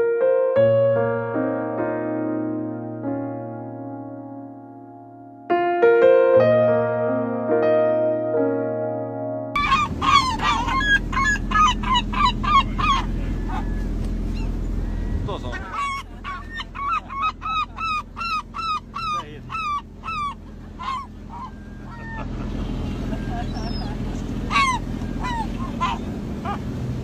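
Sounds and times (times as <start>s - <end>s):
bird yelping calls: 9.6s - 22.3s, 23.1s - 26.7s
low rumble: 9.6s - 27.0s.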